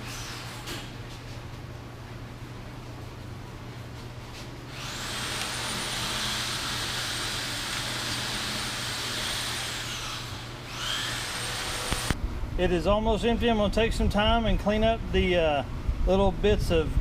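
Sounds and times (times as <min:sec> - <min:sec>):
grinder grinding metal: 0:04.8 - 0:12.2.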